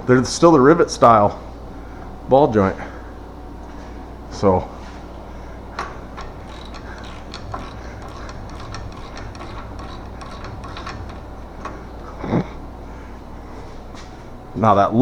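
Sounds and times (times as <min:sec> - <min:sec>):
loud metal clicks: 0:05.7 - 0:12.7
socket ratchet clicking: 0:05.8 - 0:12.4.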